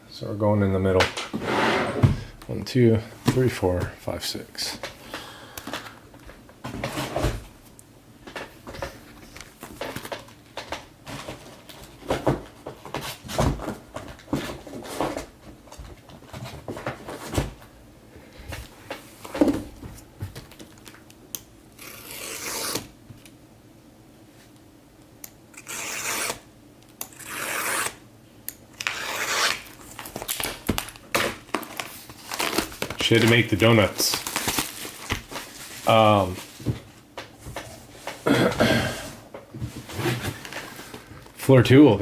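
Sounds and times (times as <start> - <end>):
crinkly wrapper rustle: 29.6 - 38.2.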